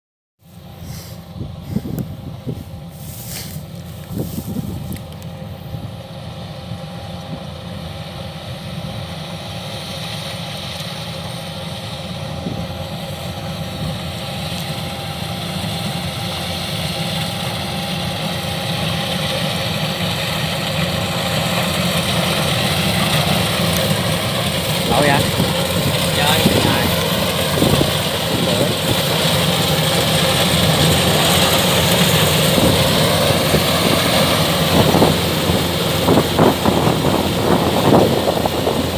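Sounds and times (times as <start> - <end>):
combine harvester diesel engine: 0.4 - 38.9
hiss of machinery: 2.9 - 4.5.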